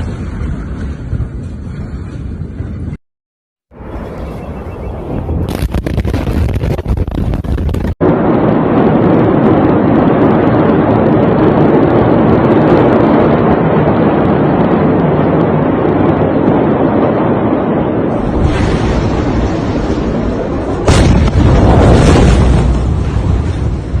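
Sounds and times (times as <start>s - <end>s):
loud crackling: 5.3s - 12.8s, 13.9s - 24.0s.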